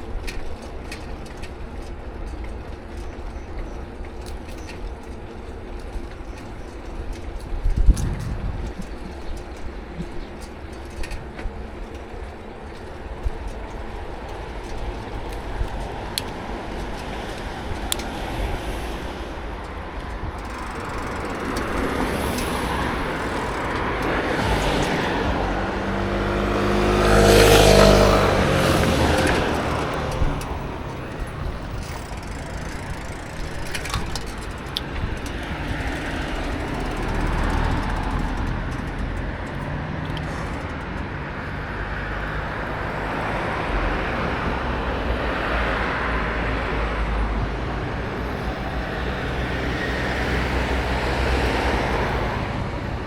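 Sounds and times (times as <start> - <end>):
passing traffic: 0.0 - 53.0
wind and road noise: 0.0 - 53.0
motor vehicle passing: 12.9 - 53.0.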